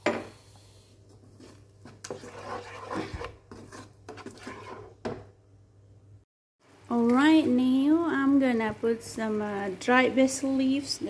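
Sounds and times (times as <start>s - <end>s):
spatula scraping sauce in wok: 1.2s - 5.2s.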